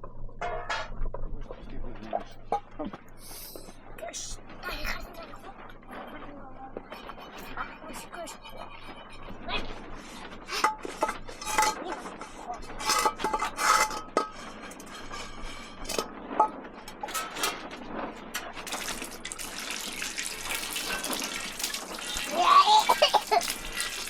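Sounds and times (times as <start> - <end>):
metal pots and dishes clinking: 0.4 - 1.0, 8.3 - 24.0
water pouring: 10.5 - 16.0, 16.8 - 24.0.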